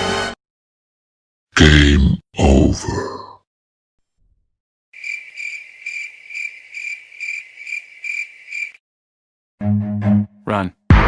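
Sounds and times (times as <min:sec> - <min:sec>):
cricket chirping: 0:05.0 - 0:08.8.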